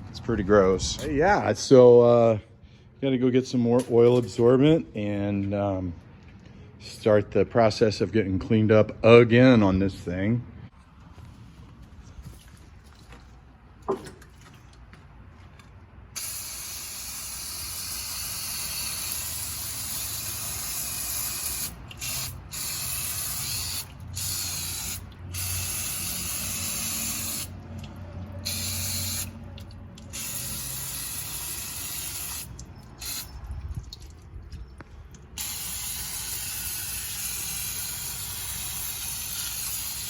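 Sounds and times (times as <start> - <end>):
aerosol spray hissing: 30.2 - 33.3.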